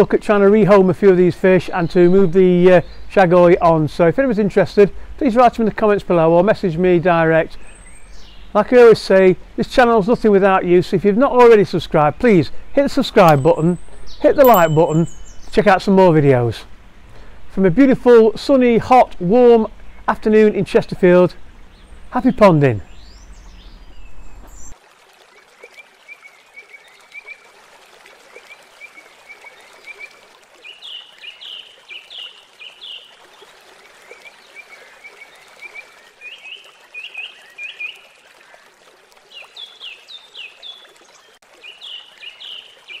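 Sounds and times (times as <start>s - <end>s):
trickling water: 0.0s - 43.0s
small bird chirping: 13.3s - 15.6s.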